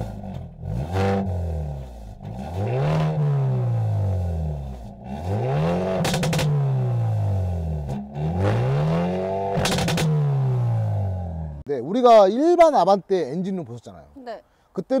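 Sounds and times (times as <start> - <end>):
exhaust pops and crackles: 0.0 - 10.8
car engine revving: 0.0 - 11.7.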